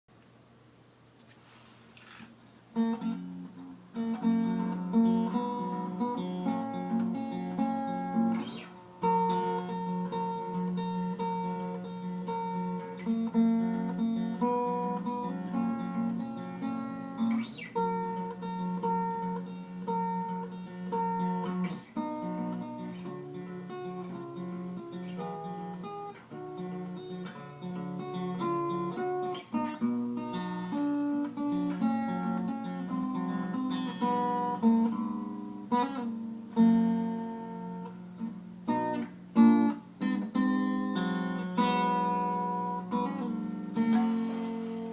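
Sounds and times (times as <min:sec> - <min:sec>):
acoustic guitar playing: 0:02.0 - 0:44.9.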